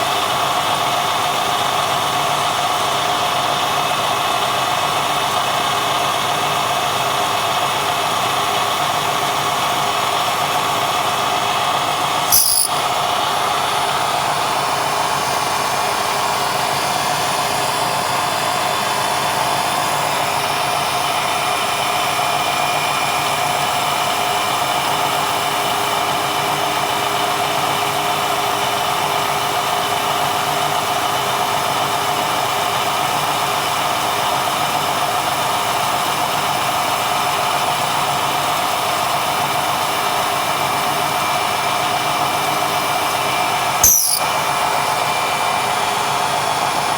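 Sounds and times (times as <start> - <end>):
sharp click: 12.3 - 12.9, 43.8 - 44.2.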